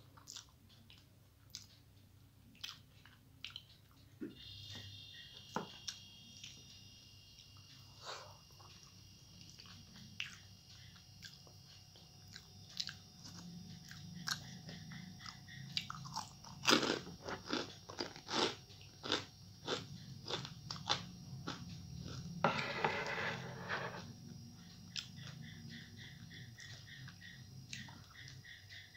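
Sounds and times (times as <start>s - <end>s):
soft chewing: 0.0s - 1.9s, 2.5s - 4.6s, 7.6s - 22.4s
crunching crisp chips: 15.8s - 22.2s.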